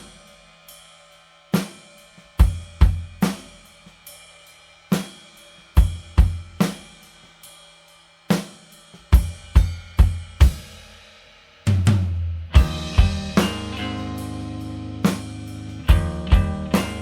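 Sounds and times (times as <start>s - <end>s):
rock drum hits: 11.9s - 17.0s.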